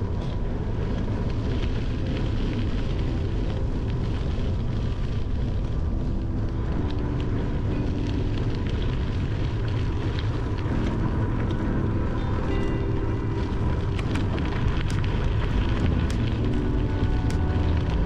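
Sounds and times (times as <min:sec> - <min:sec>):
bicycle tyres on trail: 0:00.0 - 0:18.0
wind rumble on microphone: 0:00.0 - 0:18.0.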